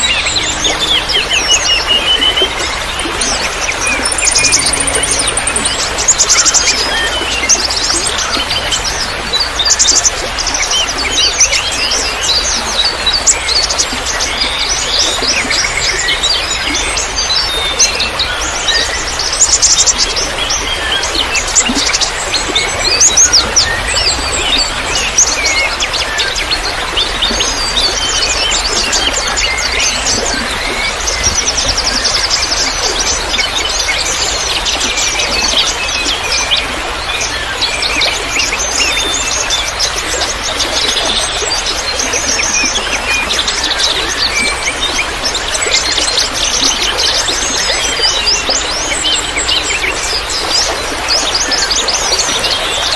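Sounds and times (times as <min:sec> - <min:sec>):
songbirds chirping and trilling: 0:00.0 - 0:52.9
trickling water: 0:00.0 - 0:52.9.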